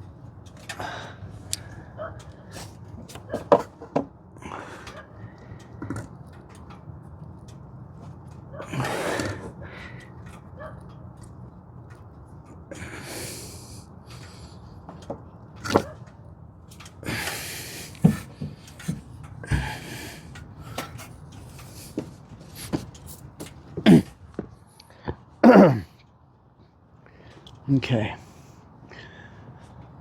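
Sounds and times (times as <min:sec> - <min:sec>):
heavy breathing: 0:00.7 - 0:02.9, 0:04.4 - 0:06.0, 0:08.6 - 0:10.4, 0:12.7 - 0:14.8, 0:17.0 - 0:26.0, 0:28.2 - 0:30.0.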